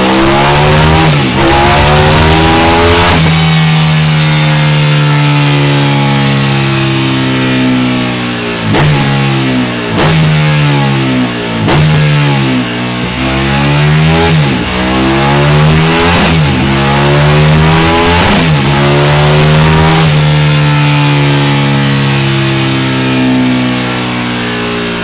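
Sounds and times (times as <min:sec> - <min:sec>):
motorcycle accelerating hard: 0:00.0 - 0:25.0.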